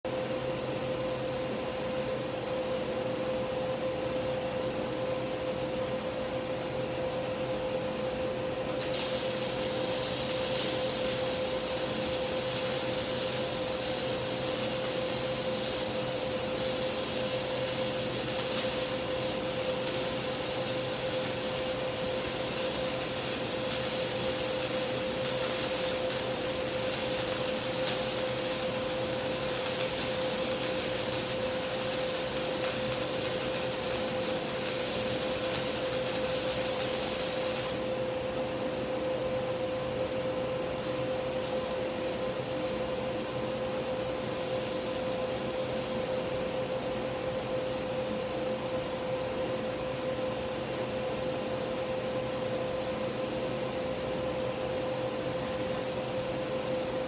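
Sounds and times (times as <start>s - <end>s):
electrical hum: 0.1s - 57.0s
welding arc hissing and crackling: 8.6s - 38.1s, 40.8s - 42.9s, 44.2s - 46.5s.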